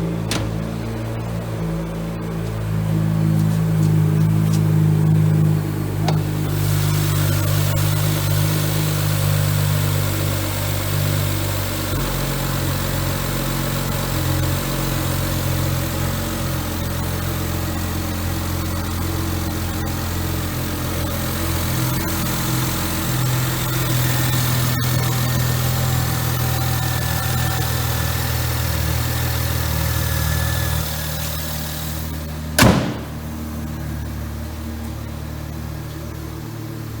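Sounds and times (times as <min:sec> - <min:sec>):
car engine idling: 0:00.0 - 0:08.3
sharp thump: 0:00.2 - 0:01.1, 0:32.6 - 0:33.5.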